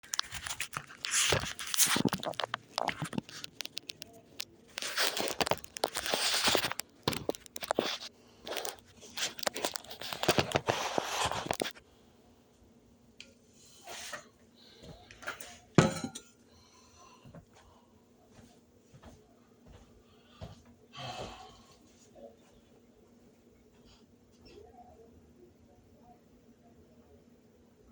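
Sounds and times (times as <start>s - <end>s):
rustling and crinkling: 0.0s - 11.8s
scattered clicks: 1.8s - 10.4s.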